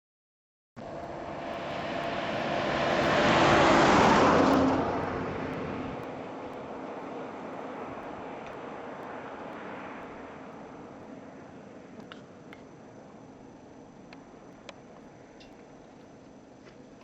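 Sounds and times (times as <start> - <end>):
vehicle passing by: 0.8 - 11.0.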